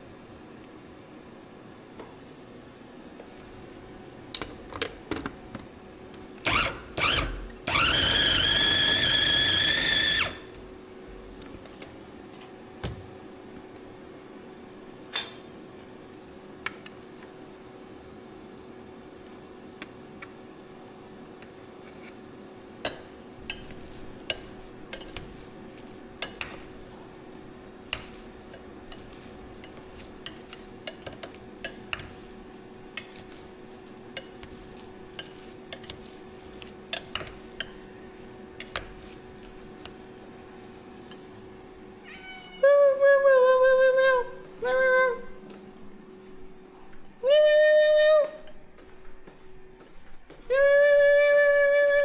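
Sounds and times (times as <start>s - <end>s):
utensil clinking against dish: 22.9s - 26.9s, 27.9s - 39.2s
cat meowing loudly: 42.0s - 42.8s.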